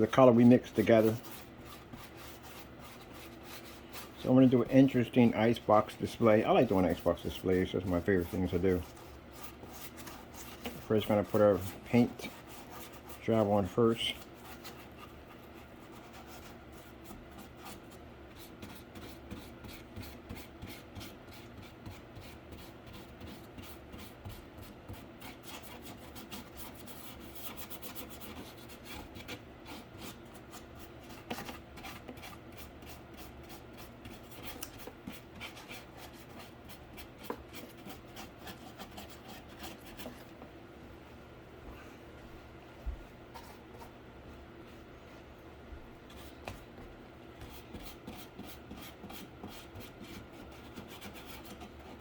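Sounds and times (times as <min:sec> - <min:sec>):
brush strokes on cardboard: 0:00.0 - 0:40.3.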